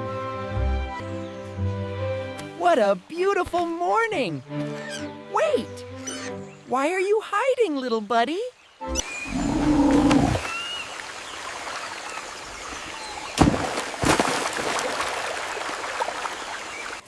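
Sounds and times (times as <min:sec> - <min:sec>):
bird chirps: 0:07.8 - 0:10.9
running water hiss: 0:08.8 - 0:13.4
low animal sound: 0:09.1 - 0:10.5.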